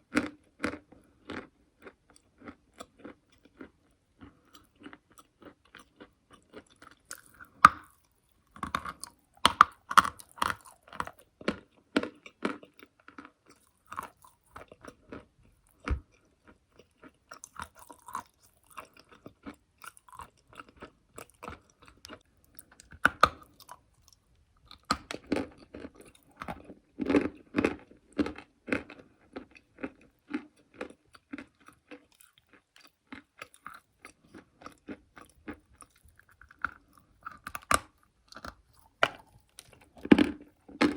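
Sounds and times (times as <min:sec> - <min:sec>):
crunching and chewing chalk: 0:00.0 - 0:40.9.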